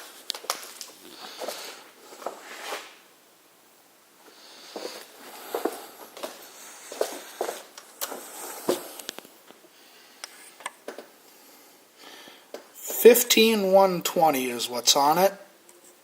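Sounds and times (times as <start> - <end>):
footsteps: 0.0 - 3.0, 4.6 - 9.6.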